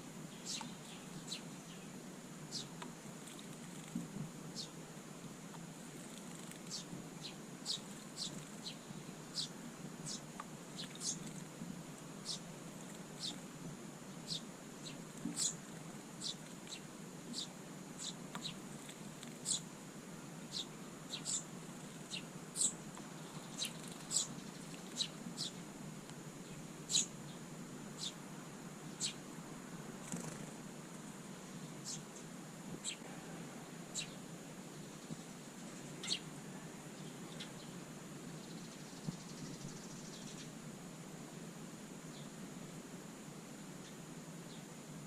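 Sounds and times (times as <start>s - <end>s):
songbirds chirping: 0.0s - 45.0s
steady low hum: 0.0s - 45.0s
faint rapid twitter: 38.3s - 40.6s.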